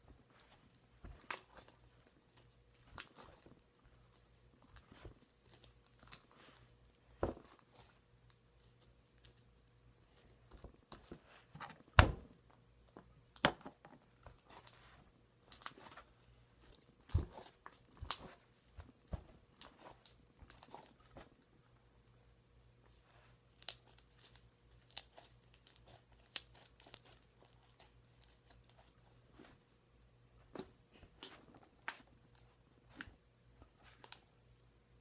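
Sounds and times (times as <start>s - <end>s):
slime wet pops and crackles: 17.0s - 18.4s, 23.5s - 28.8s.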